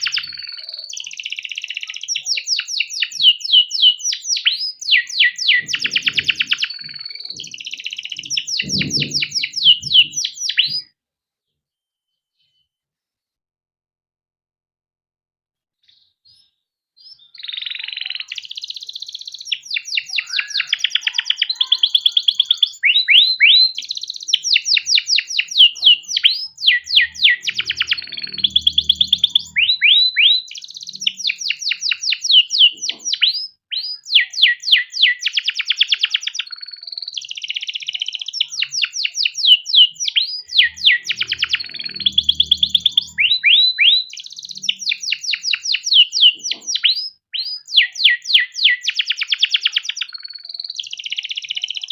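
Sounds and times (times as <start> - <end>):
canary singing trills: 0.0 - 10.9, 15.8 - 51.9.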